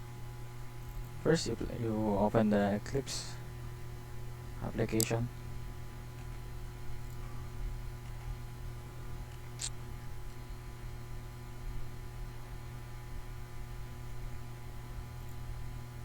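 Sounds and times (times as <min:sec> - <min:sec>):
electrical mains hum: 0:00.0 - 0:16.0
sharp click: 0:09.3 - 0:09.8.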